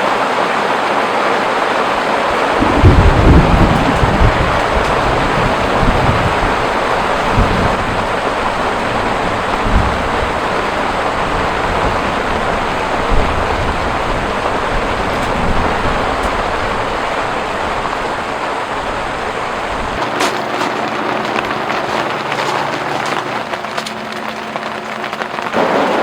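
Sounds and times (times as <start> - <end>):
heavy rain falling: 0.0 - 26.0
low rumbles: 2.3 - 20.0.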